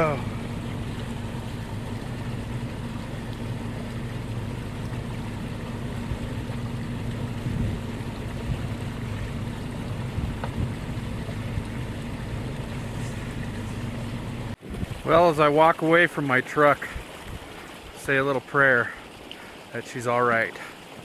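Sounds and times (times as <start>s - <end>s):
low hum: 0.0s - 14.6s
rushing creek water: 0.0s - 21.0s.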